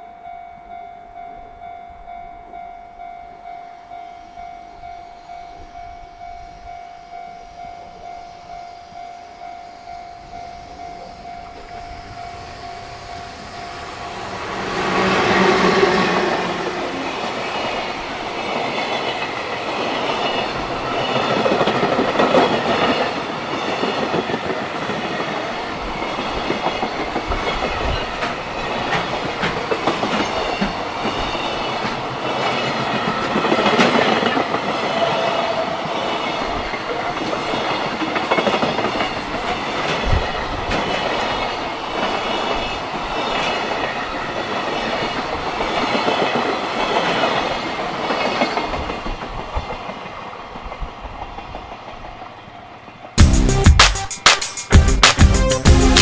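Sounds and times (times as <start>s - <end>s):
steady train rumble: 1.1s - 53.7s
train wheels clattering on rail joints: 17.6s - 52.4s.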